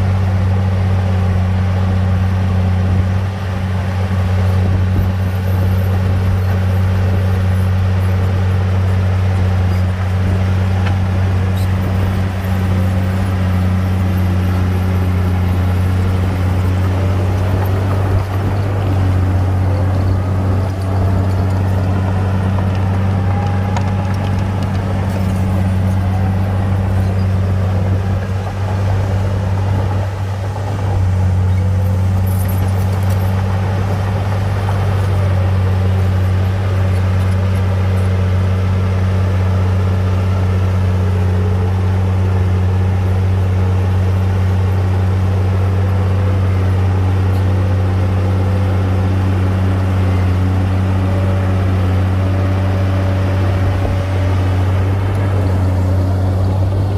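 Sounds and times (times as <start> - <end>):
heavy diesel engine droning: 0.0 - 56.9.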